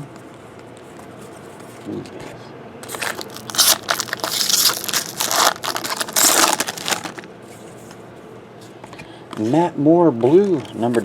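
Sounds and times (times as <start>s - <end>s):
foil wrapper crinkling and tearing: 2.8s - 7.3s.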